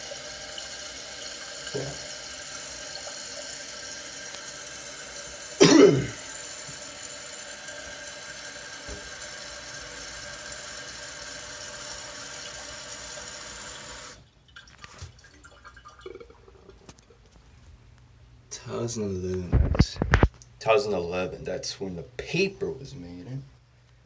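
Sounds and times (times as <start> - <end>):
toilet fill valve hissing: 0.0 - 16.8.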